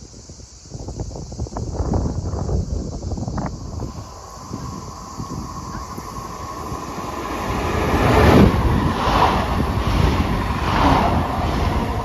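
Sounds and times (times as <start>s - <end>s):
train wheels rumbling on rails: 3.2s - 12.0s.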